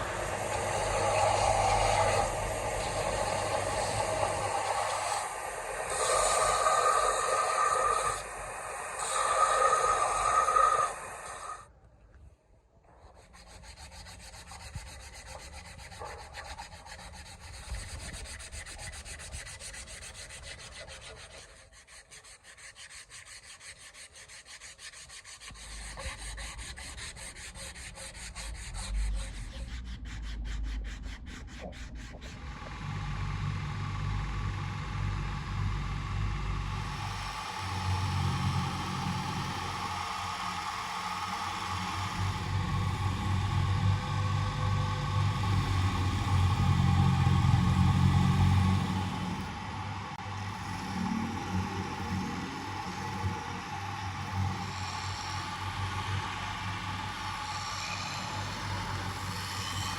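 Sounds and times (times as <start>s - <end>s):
abrasive sanding and rubbing: 0.0s - 11.6s, 13.0s - 32.5s, 52.1s - 59.9s
low rumble: 32.3s - 39.6s.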